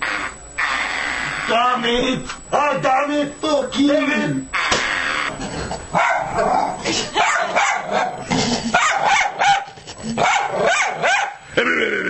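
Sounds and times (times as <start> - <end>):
dog barking: 6.0 - 6.6, 7.2 - 8.1, 8.8 - 11.4.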